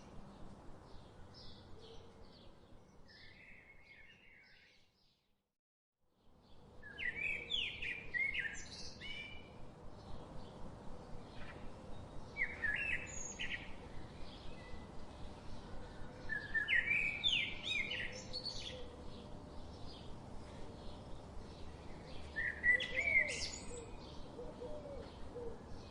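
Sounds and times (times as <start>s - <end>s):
steady background hiss: 6.4s - 25.9s.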